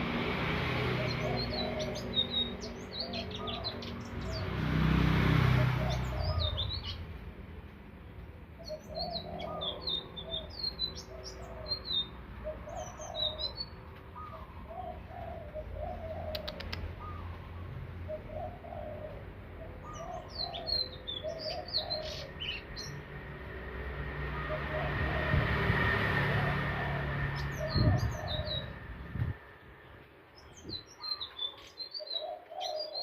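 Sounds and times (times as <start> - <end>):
bird twittering song: 0.9 - 4.7, 5.6 - 7.2, 8.5 - 23.0, 27.4 - 29.2, 29.9 - 33.0
sharp clicks: 16.4 - 17.0.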